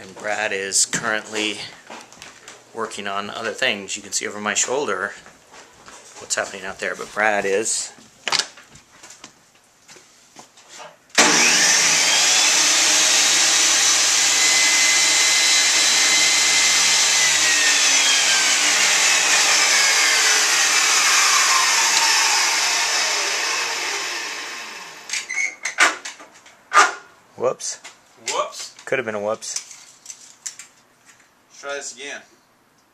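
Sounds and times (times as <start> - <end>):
electric motor running: 11.2 - 25.2
motor winding down whine: 11.2 - 25.3.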